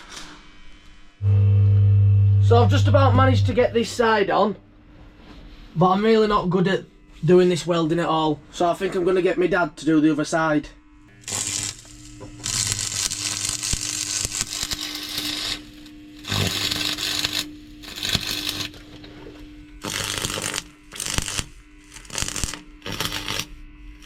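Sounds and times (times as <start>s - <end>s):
steady low hum: 1.2s - 24.0s
welding arc crackling: 11.1s - 19.0s, 19.7s - 24.0s.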